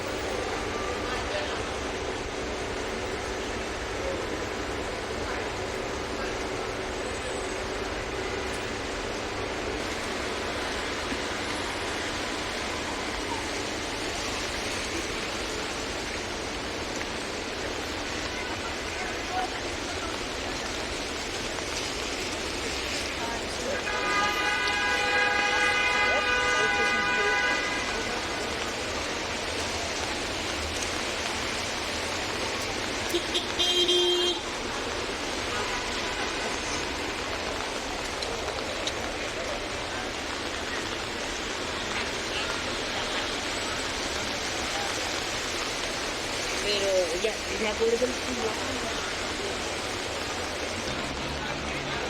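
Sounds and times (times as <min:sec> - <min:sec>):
rain falling on street: 0:00.0 - 0:52.0
traffic on wet road: 0:00.0 - 0:52.0
car horn tooting: 0:23.8 - 0:28.1, 0:33.1 - 0:34.5, 0:35.5 - 0:36.4.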